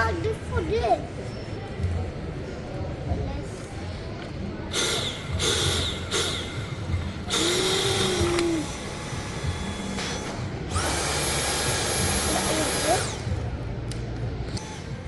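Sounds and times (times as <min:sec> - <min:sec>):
vacuum cleaner motor whining: 0:10.7 - 0:13.2.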